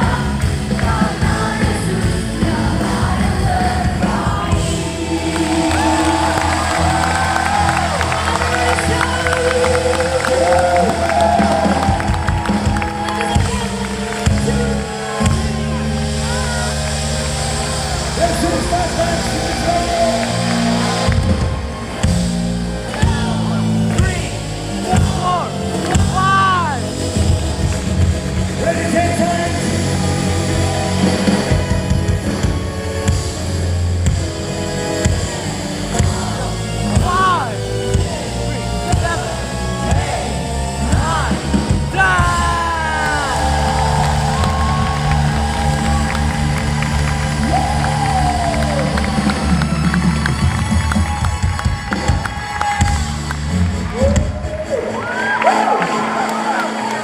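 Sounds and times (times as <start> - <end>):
voices singing: 0.0 - 16.4
deep bass line: 0.0 - 56.2
worship band playing: 0.0 - 57.0.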